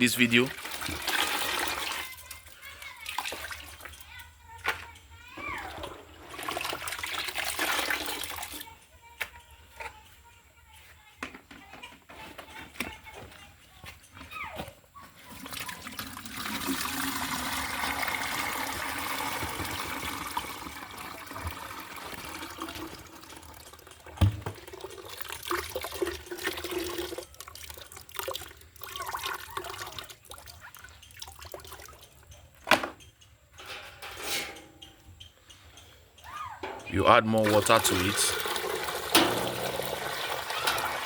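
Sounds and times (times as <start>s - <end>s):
liquid pouring into container: 0.0s - 4.0s, 5.7s - 8.6s, 15.3s - 32.3s, 36.9s - 41.0s
knocks and taps of container: 23.8s - 25.0s.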